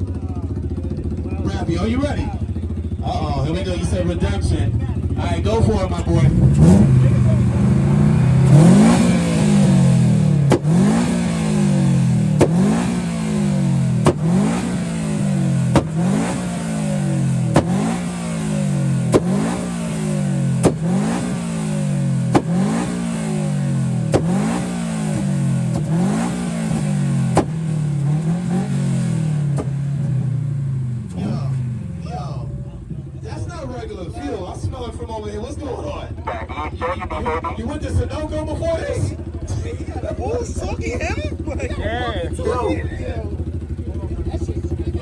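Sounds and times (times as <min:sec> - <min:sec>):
car engine revving: 0:00.8 - 0:45.0
sharp exhaust crack: 0:06.2 - 0:31.9.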